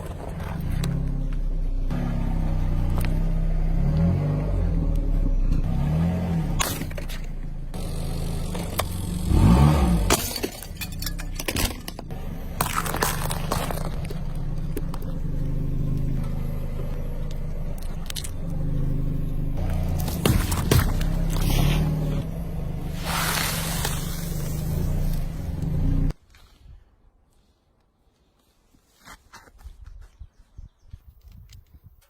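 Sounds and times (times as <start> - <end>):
car engine running: 0.0 - 10.2, 11.1 - 26.1
objects cracking under tyres: 10.0 - 18.7, 19.6 - 22.3.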